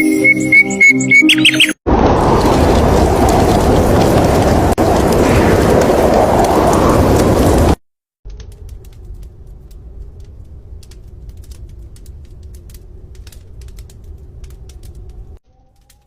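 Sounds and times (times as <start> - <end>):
low wind rumble: 1.9 - 16.0
raindrops ticking on hard surface: 2.0 - 16.0.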